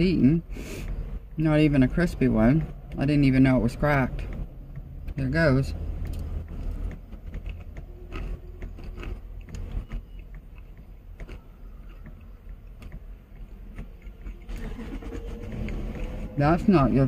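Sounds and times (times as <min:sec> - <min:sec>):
steady low hum: 0:00.0 - 0:17.0
mouth clicks and smacks: 0:04.2 - 0:16.2
chewing on dentures: 0:04.2 - 0:17.0.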